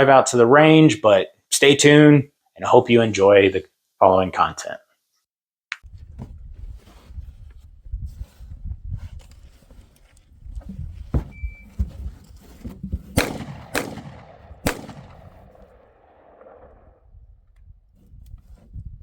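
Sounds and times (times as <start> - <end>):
rifle gunshots: 13.2 - 17.0.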